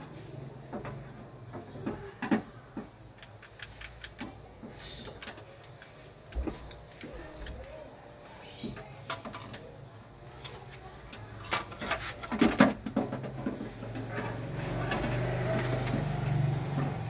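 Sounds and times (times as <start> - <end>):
knocks and rattles of door parts: 11.4 - 17.0.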